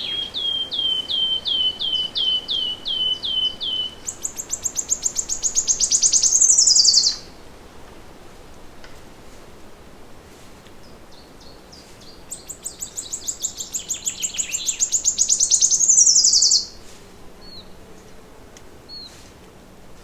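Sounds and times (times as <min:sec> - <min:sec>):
birds chirping: 0:00.0 - 0:07.3, 0:11.1 - 0:16.8
songbird trilling: 0:00.0 - 0:07.3, 0:11.4 - 0:16.8.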